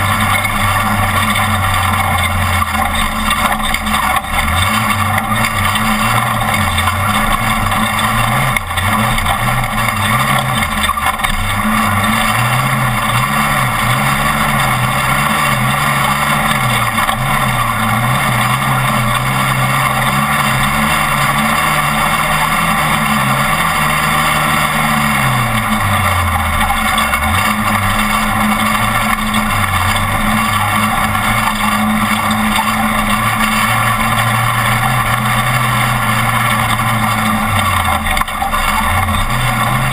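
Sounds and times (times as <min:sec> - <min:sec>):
race truck engine revving: 0:00.0 - 0:39.9.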